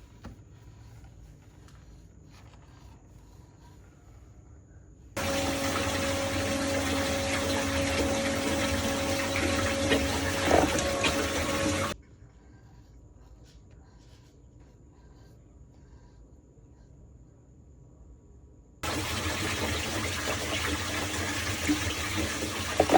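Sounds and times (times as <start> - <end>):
pump hum: 5.2 - 12.0, 18.8 - 22.9
water swirling down sink drain: 5.2 - 12.0, 18.8 - 22.9.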